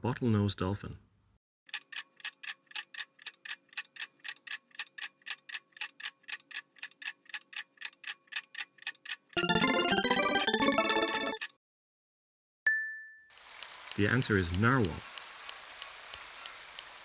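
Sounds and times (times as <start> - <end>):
clock ticking: 1.7 - 11.6
bright chiming jingle: 9.4 - 11.4.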